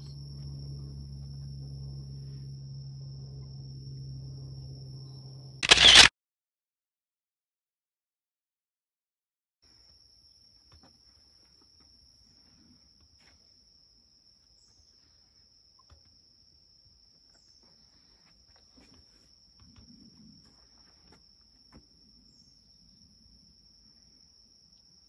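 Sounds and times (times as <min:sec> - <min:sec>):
high-pitched insect trill: 0:20.6 - 0:25.0.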